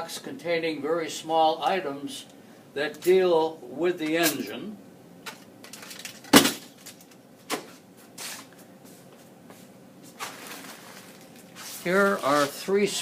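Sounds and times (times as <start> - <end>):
sharp knock of parts: 6.3 - 6.7.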